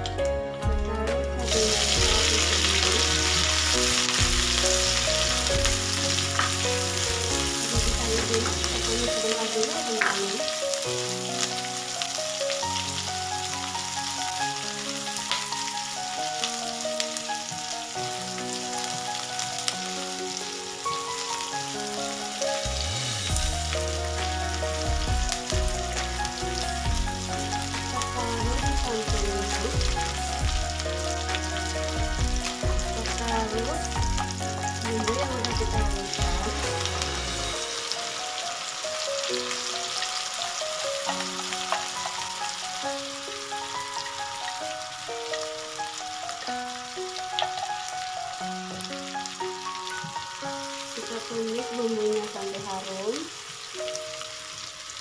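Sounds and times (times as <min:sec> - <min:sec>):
background music with bass: 0:00.0 - 0:09.2, 0:22.4 - 0:38.0
chilies sizzling in hot oil: 0:00.0 - 0:55.0.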